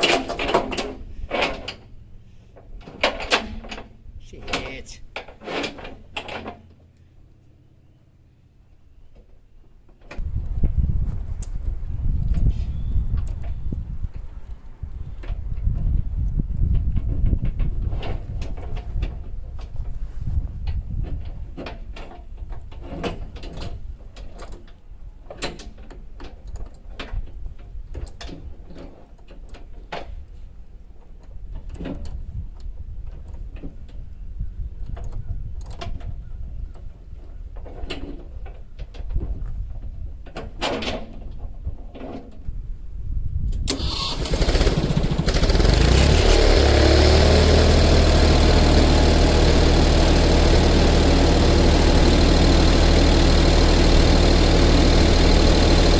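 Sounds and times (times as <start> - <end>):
engine starting and running: 0.0 - 6.8, 43.6 - 55.9.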